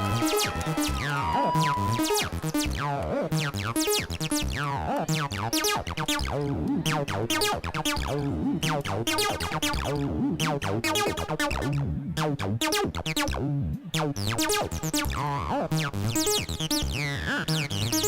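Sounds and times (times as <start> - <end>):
electronic dance music: 0.0 - 13.4.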